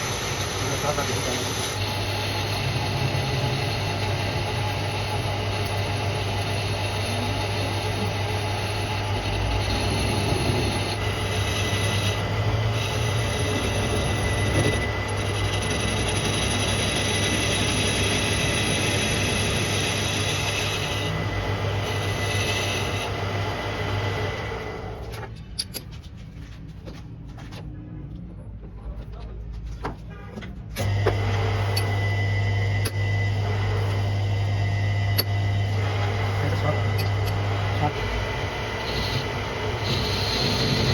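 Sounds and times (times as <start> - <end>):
lathe motor hum: 0.0 - 25.8, 30.8 - 40.9
high metallic screech: 38.8 - 40.9.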